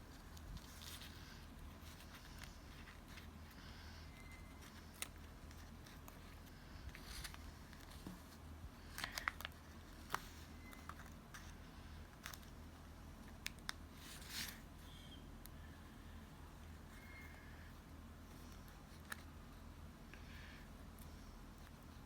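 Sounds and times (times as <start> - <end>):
steady low hum: 0.0 - 22.0
paper being handled: 0.1 - 11.5.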